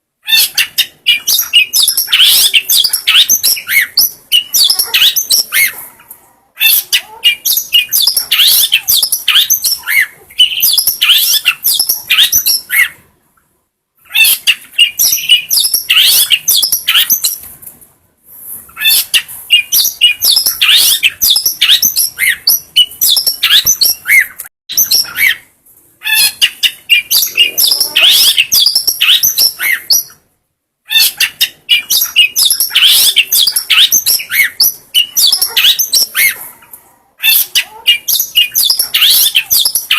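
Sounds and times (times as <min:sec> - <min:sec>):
shrike chattering song: 0:00.3 - 0:05.8, 0:18.7 - 0:30.2, 0:30.9 - 0:36.4, 0:37.2 - 0:39.9.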